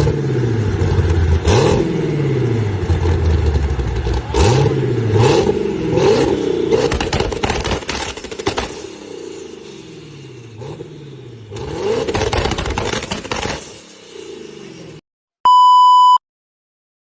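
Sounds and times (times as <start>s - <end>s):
car engine revving: 0.0s - 15.0s
exhaust crackling pops: 6.8s - 9.1s, 11.5s - 14.0s
steady electronic beep: 15.4s - 16.2s.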